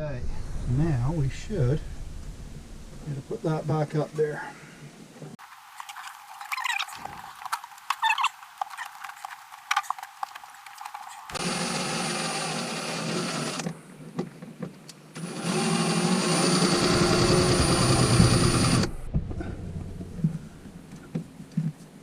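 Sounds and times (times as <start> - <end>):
cordless drill driving screw: 11.4 - 13.7, 15.2 - 18.9.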